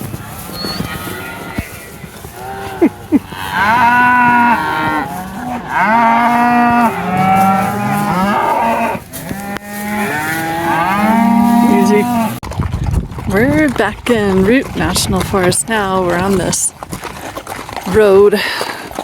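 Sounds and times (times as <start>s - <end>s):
cattle mooing: 0.2s - 12.4s.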